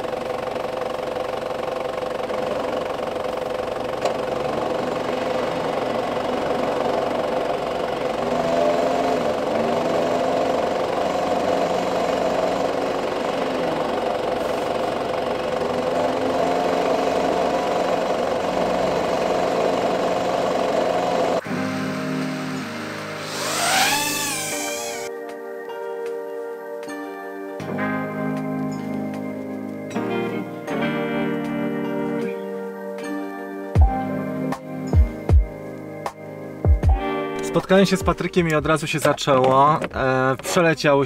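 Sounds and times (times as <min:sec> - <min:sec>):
car engine idling: 0:00.0 - 0:25.1
wheels spinning in snow: 0:00.0 - 0:25.1
car engine revving: 0:03.6 - 0:25.1.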